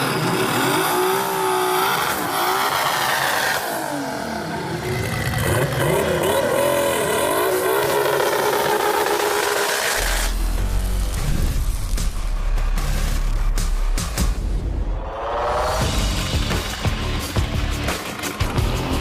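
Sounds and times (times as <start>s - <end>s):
car engine revving hard: 0.0s - 11.2s.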